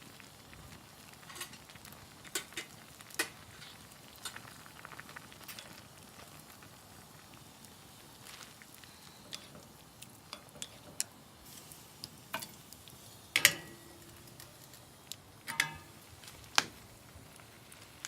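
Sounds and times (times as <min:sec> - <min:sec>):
utensils clinking on metal pot: 0:13.4 - 0:14.7, 0:15.5 - 0:15.9.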